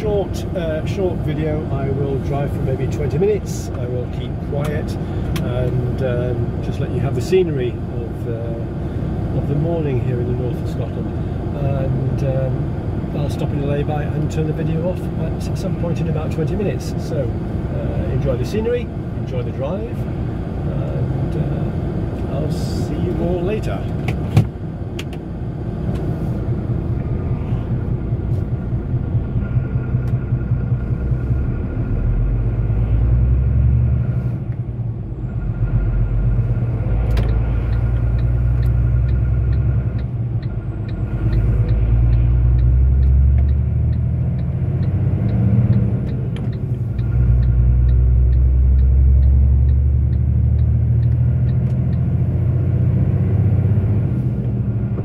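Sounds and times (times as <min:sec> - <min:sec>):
truck engine rumble in cab: 0:00.0 - 0:55.0
faint regular ticking: 0:35.2 - 0:52.1.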